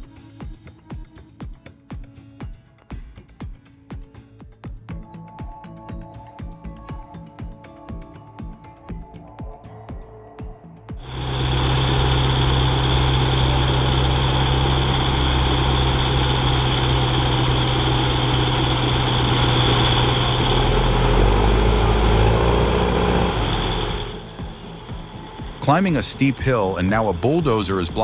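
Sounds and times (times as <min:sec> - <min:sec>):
deeper rumble: 0:11.0 - 0:28.0
heavy diesel engine running: 0:11.0 - 0:28.0.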